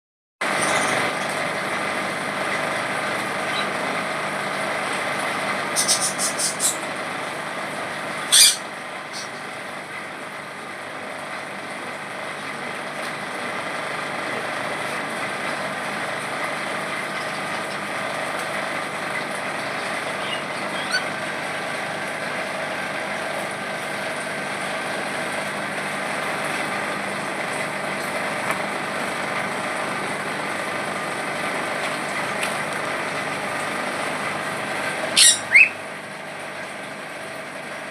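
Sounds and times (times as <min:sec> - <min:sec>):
steady mechanical hum: 0:00.4 - 0:37.9
pet bird high calls: 0:08.3 - 0:09.3, 0:20.2 - 0:21.1, 0:35.2 - 0:35.8.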